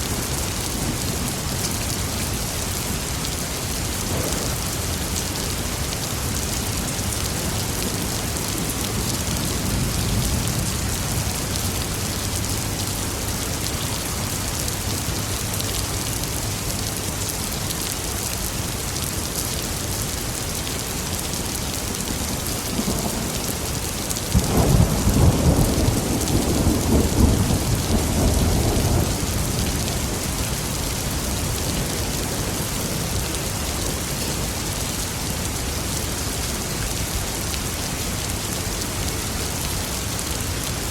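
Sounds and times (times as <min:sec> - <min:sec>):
heavy rain hissing: 0:00.0 - 0:40.9
thunder rumbling: 0:04.0 - 0:05.6, 0:22.1 - 0:33.1.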